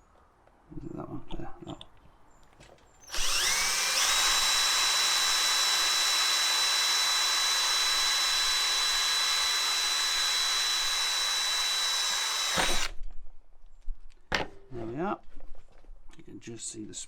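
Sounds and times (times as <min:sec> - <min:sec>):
electric drill whining: 0:03.0 - 0:13.0.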